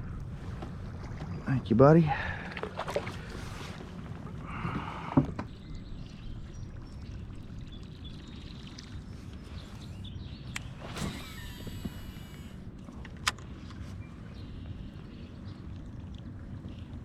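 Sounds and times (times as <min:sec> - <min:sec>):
steady low rumble: 0:00.0 - 0:17.0
water splashing around kayak: 0:00.2 - 0:17.0.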